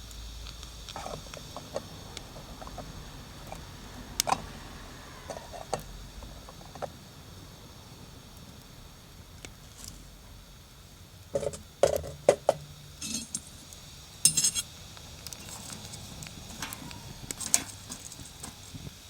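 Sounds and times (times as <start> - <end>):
metal cookware clinking: 11.4 - 18.9.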